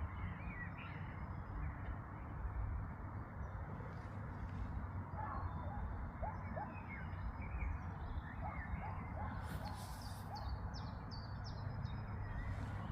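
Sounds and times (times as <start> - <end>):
birds chirping: 4.9 - 12.9.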